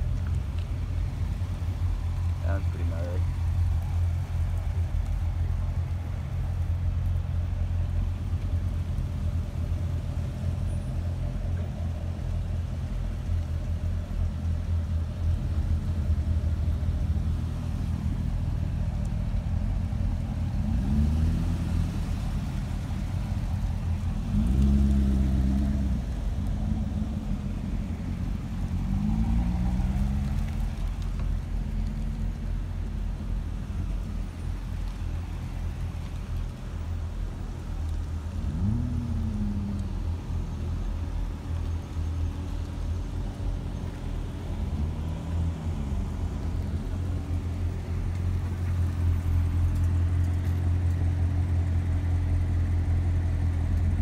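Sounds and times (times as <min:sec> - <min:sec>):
car engines driving past: 0:00.0 - 0:54.0
car engine revving: 0:20.5 - 0:32.4, 0:38.3 - 0:40.2.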